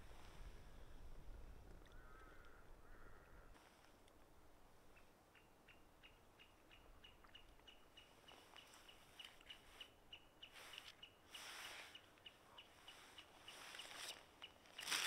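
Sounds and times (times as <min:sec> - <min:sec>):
small bird chirping: 0:04.9 - 0:15.0.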